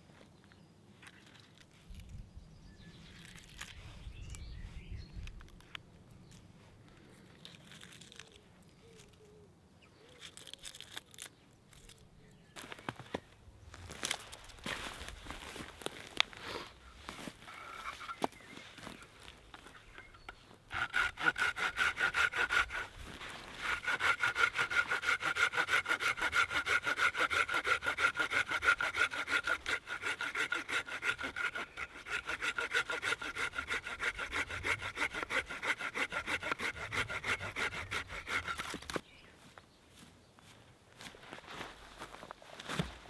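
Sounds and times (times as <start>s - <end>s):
hand saw cutting wood: 14.0s - 39.0s.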